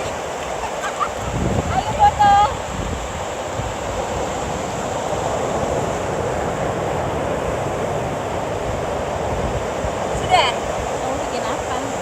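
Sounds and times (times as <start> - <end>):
surf on the shore: 0.0 - 12.0
wind rumbling on microphone: 0.0 - 12.0.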